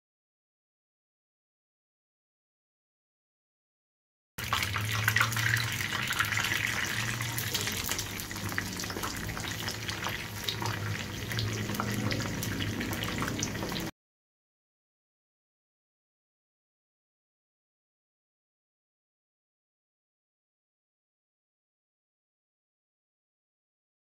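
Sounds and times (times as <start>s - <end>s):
food sizzling in hot oil: 4.4s - 13.9s.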